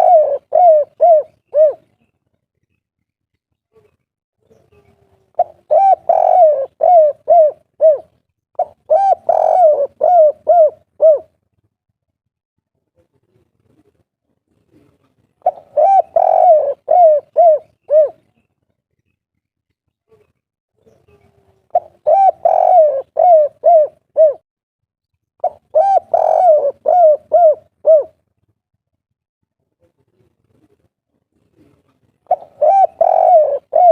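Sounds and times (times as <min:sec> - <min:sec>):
dove cooing: 0:00.0 - 0:02.0, 0:05.0 - 0:11.4, 0:14.8 - 0:18.4, 0:21.3 - 0:24.4, 0:25.4 - 0:28.2, 0:31.6 - 0:33.9.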